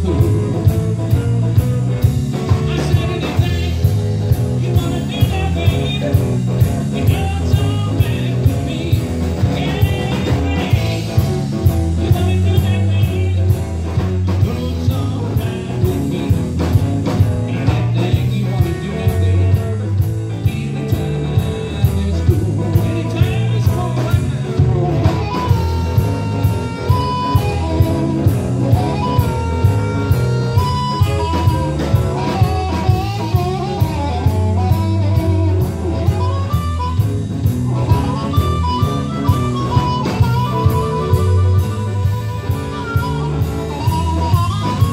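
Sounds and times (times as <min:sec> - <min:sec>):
blues-rock band playing: 0:00.0 - 0:44.9
guitar lead long notes: 0:00.0 - 0:44.9.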